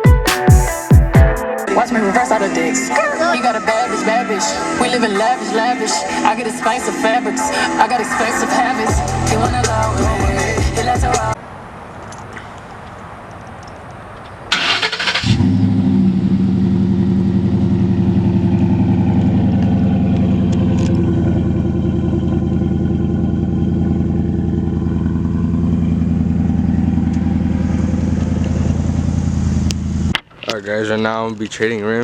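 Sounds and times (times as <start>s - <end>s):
engine cranking: 14.5s - 16.1s, 18.0s - 28.8s
engine idling loudly: 15.2s - 30.1s.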